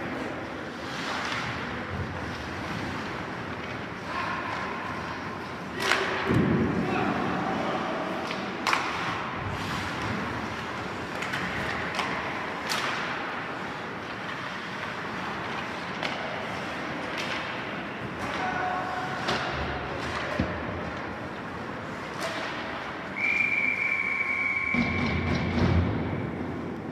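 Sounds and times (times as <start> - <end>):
hockey sticks and puck clacking: 0.0 - 7.4, 8.0 - 24.0, 24.6 - 26.9
high whistle-like tone: 23.2 - 25.5.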